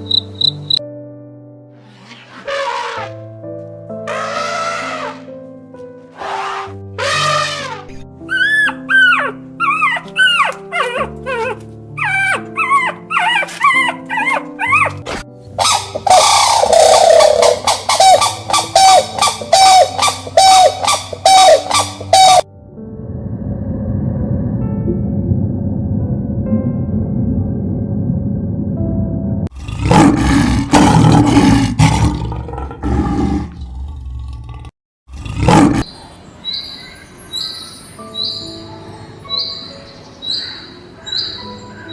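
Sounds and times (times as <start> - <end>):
background music: 0.0 - 33.5, 35.3 - 41.9
animal call: 4.1 - 5.2, 6.2 - 15.0, 15.6 - 22.4
dog yipping and whimpering: 8.3 - 22.4
big cat roaring: 29.5 - 35.9.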